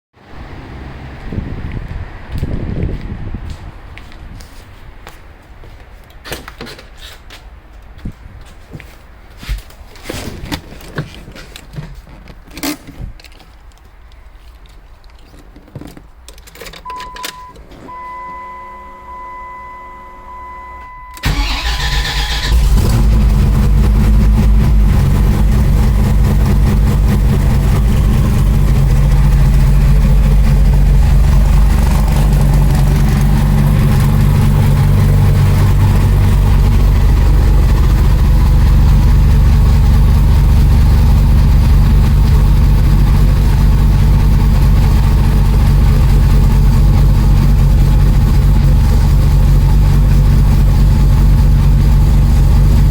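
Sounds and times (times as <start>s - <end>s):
car engine starting and idling: 16.4s - 52.9s
steady high tone: 16.9s - 21.3s.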